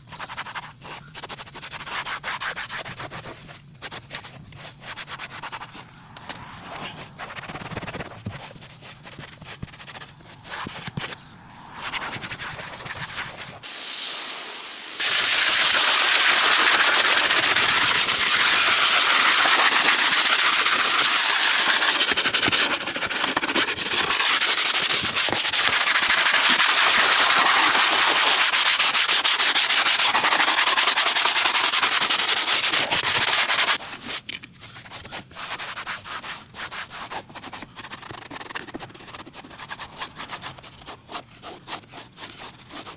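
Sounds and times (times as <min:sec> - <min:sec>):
scrubbing and rubbing: 0:15.0 - 0:33.8.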